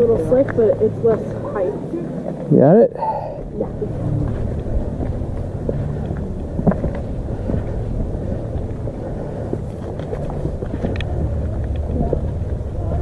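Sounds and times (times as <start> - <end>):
wind buffeting microphone: 3.3 - 13.0.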